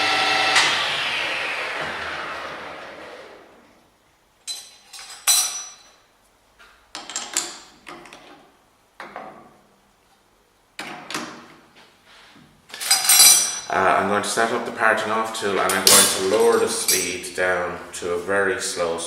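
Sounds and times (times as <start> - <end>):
lathe running: 0.0 - 3.7
metal tools clinking and clanking: 4.4 - 6.0, 12.8 - 13.7, 15.7 - 17.4.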